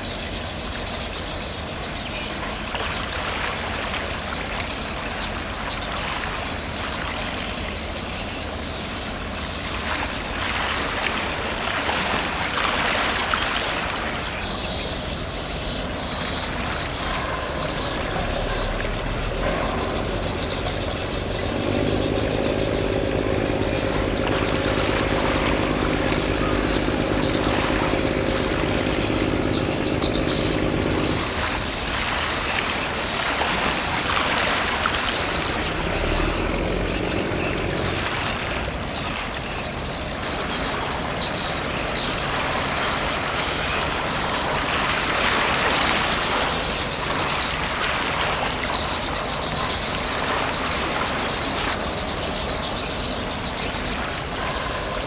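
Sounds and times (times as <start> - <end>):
ship engine droning: 11.4 - 55.0
outdoor noise: 12.9 - 40.5
steady pitched hum: 17.0 - 32.7.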